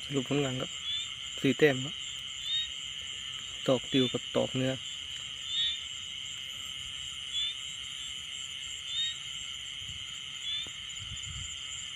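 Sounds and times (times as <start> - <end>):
insect chorus drone: 0.0 - 11.9.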